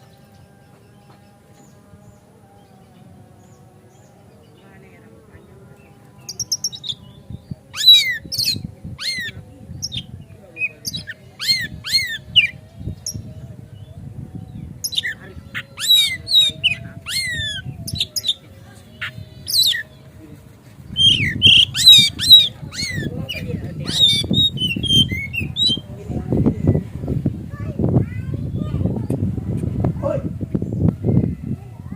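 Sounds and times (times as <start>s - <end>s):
bird singing whistled notes: 6.2s - 19.9s, 20.9s - 25.9s.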